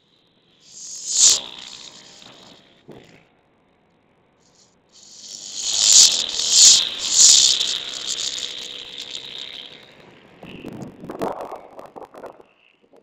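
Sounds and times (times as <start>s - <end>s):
racing motorcycle engines: 0.8s - 3.0s, 5.0s - 10.2s.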